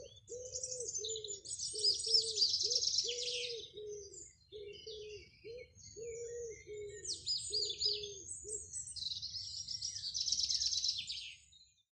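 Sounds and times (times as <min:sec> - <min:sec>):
pigeon cooing: 0:00.0 - 0:08.7
songbirds chirping and trilling: 0:00.0 - 0:12.0.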